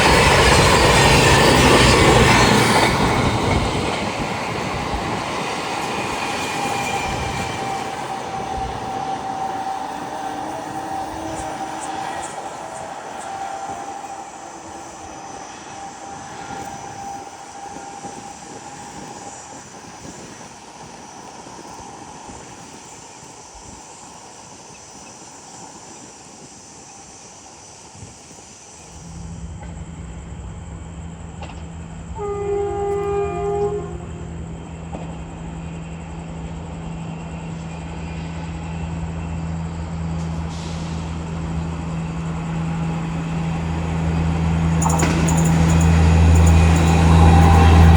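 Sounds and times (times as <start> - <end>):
rail noise: 0.0 - 47.9
train horn blast: 6.5 - 19.2, 31.4 - 35.0, 44.3 - 47.9
locomotive low hum: 28.9 - 47.9.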